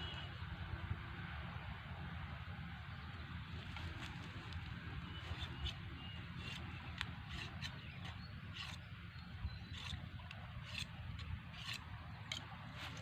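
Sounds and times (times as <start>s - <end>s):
knife scraping bamboo stick: 5.2s - 8.9s, 9.5s - 13.0s.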